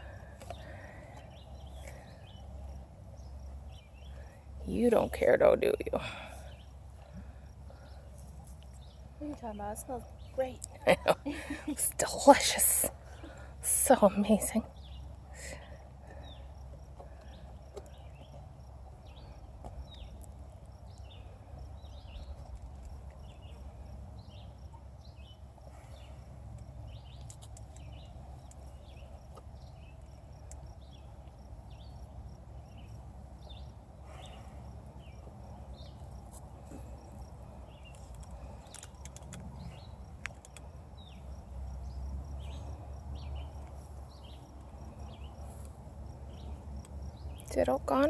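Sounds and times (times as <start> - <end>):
tiger chewing: 25.8 - 31.4, 34.1 - 47.4.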